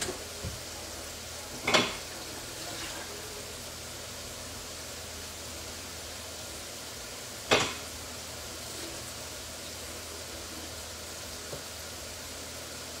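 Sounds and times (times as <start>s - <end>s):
potato wedges sizzling in oil: 0.0s - 13.0s.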